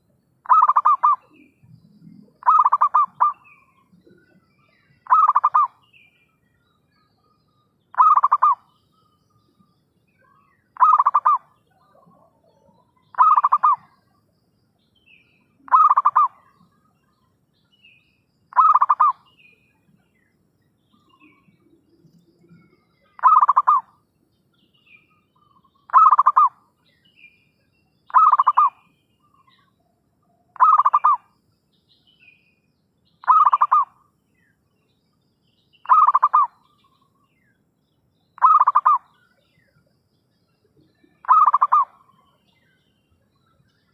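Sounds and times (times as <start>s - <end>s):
small birds chirping: 0.0s - 43.9s
dove cooing: 0.5s - 1.3s, 2.1s - 3.4s, 5.0s - 5.7s, 7.9s - 8.6s, 10.8s - 11.4s, 13.1s - 13.9s, 15.7s - 16.4s, 18.5s - 19.2s, 23.2s - 23.9s, 25.9s - 26.5s, 28.1s - 28.8s, 30.6s - 31.2s, 33.2s - 33.9s, 35.9s - 36.5s, 38.4s - 39.0s, 41.2s - 41.9s.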